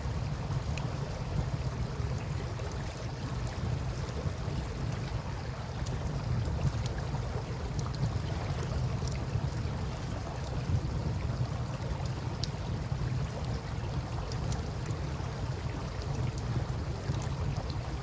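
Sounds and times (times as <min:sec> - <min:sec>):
river water flowing: 0:00.0 - 0:18.0
wind: 0:00.0 - 0:18.0.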